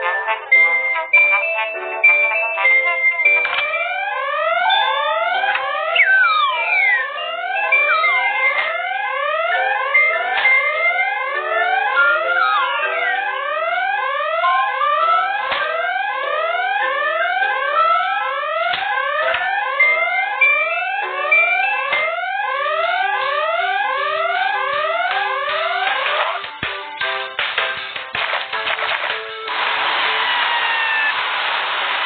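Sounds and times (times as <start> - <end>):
beeping tune: 0.0 - 15.3, 19.6 - 27.3
electronic siren sweeps: 3.6 - 26.4, 29.5 - 32.0.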